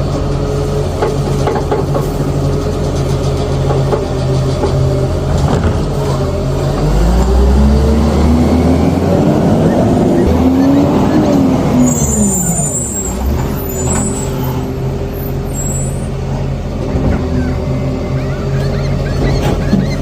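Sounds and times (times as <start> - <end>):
rubbish truck engine: 0.0 - 20.0
high-pitched squeals: 7.0 - 16.2.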